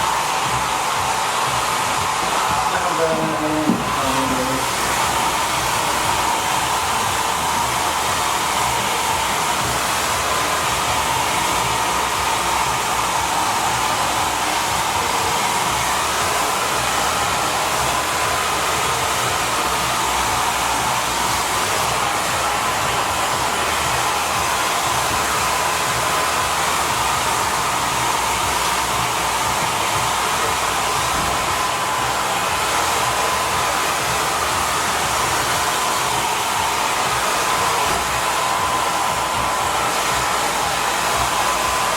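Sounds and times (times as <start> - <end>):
hair dryer blowing: 0.0 - 41.9.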